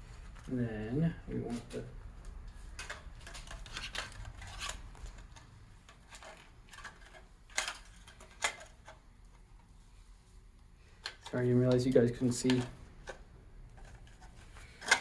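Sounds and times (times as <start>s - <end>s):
metallic clicks and scrapes: 2.5s - 9.0s.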